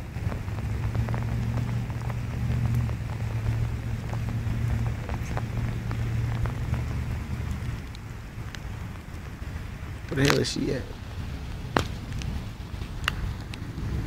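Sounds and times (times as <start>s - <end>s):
low rumble: 0.0s - 14.0s
rain falling: 0.0s - 14.0s
raindrops ticking: 0.0s - 14.0s.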